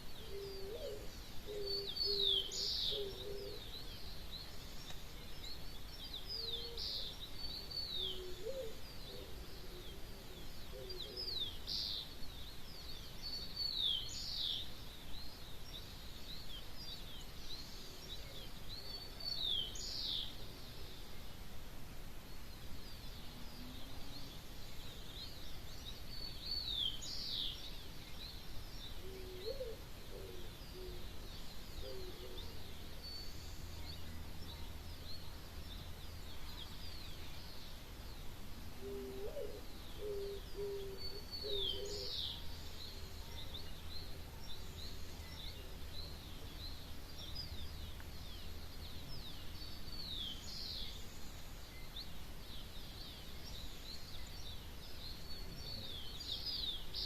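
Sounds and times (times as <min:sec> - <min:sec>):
birds singing and chirping: 0:00.0 - 0:57.0
lower-pitched bird call: 0:38.8 - 0:43.6.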